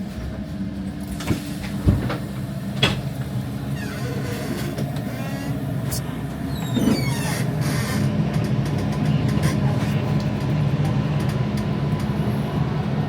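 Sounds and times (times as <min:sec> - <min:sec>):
train rumbling on rails: 0:00.0 - 0:13.0
faint wheel squeal: 0:06.5 - 0:08.1.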